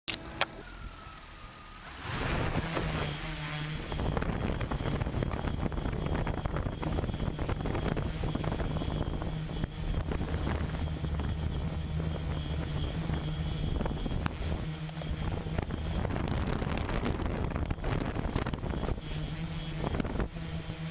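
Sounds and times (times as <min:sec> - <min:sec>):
large engine droning: 0:00.1 - 0:20.9.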